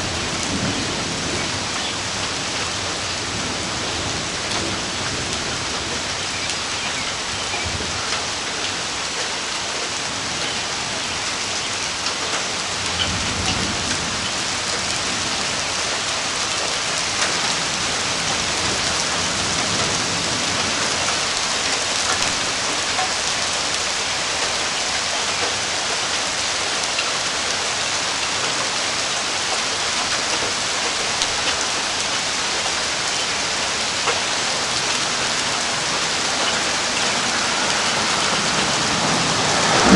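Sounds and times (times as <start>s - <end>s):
low thunder rumble: 0.0s - 6.2s, 34.6s - 39.9s
steady rain: 0.0s - 39.9s.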